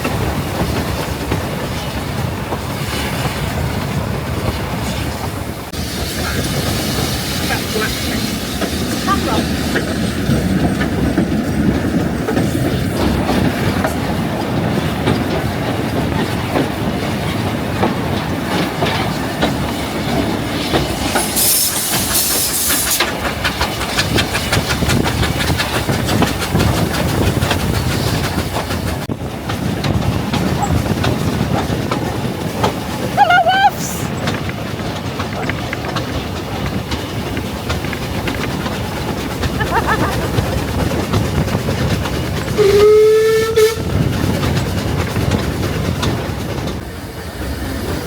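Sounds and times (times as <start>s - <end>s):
train rumbling: 0.0s - 48.0s
wheels clattering over rails: 0.0s - 48.0s.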